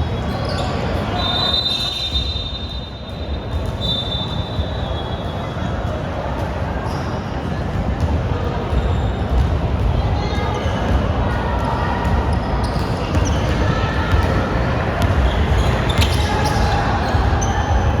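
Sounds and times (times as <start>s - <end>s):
basketball bouncing on court: 7.7s - 18.0s.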